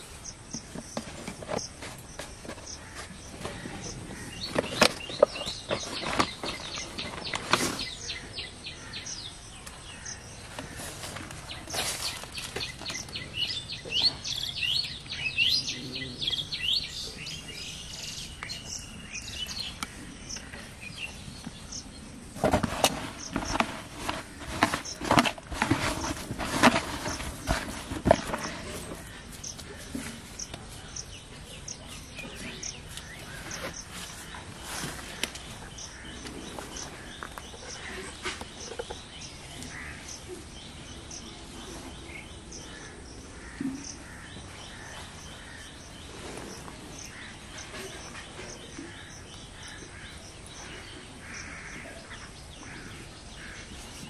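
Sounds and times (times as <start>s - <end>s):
birds chirping: 0.0s - 54.0s
objects clicking and rustling: 22.4s - 30.6s.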